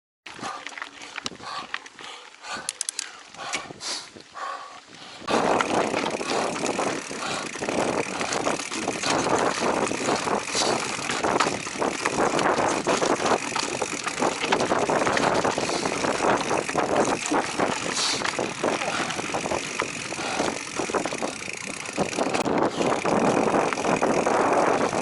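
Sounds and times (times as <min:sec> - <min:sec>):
mountain bike rattling over dirt: 0:00.3 - 0:03.4, 0:04.9 - 0:25.0
tyre noise: 0:00.3 - 0:25.0
bike knocking over rocks: 0:05.4 - 0:24.3.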